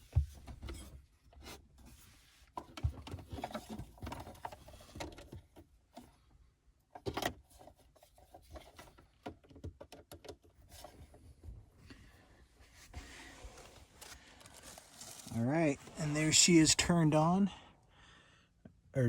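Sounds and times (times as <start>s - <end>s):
faint handling clicks and rubbing: 12.6s - 16.7s.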